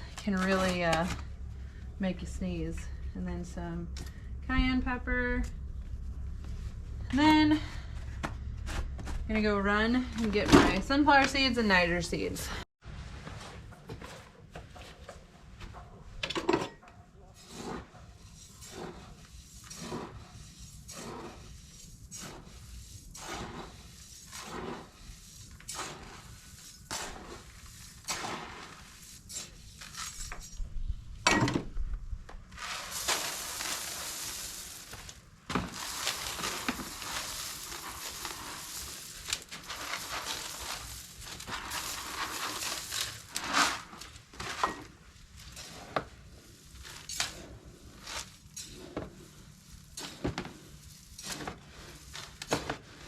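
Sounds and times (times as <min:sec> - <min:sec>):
dry seeds pouring: 0:17.5 - 0:30.6, 0:32.5 - 0:53.0.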